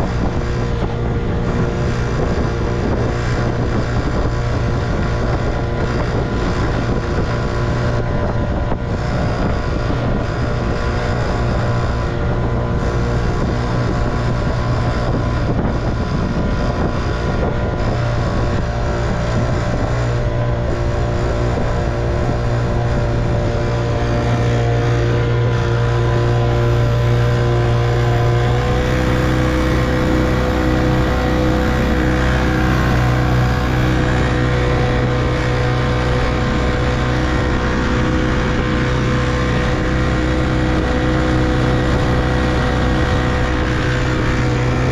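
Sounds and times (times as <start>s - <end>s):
two-stroke outboard motor running: 0.0s - 44.9s.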